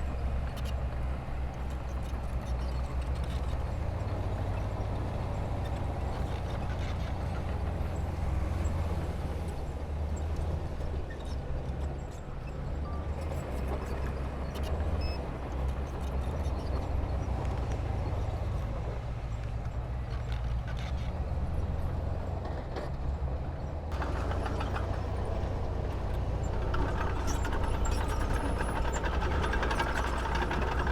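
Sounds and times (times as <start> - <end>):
diesel engine deep rumble: 0.0 - 30.9
faint clicks and clanks: 23.9 - 30.9.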